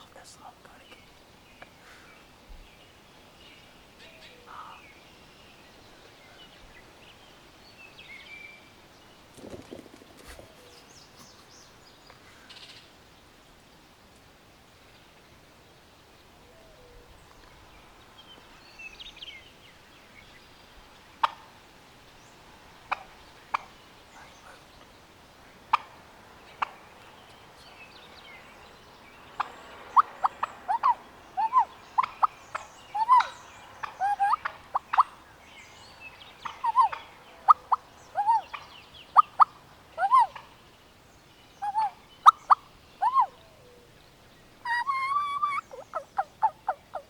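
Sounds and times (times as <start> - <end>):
small birds chirping: 0.0 - 47.0
turkey clucks: 21.2 - 21.6, 22.9 - 23.8, 25.7 - 27.4, 29.3 - 35.2, 36.4 - 40.6, 41.6 - 43.5, 44.6 - 47.0.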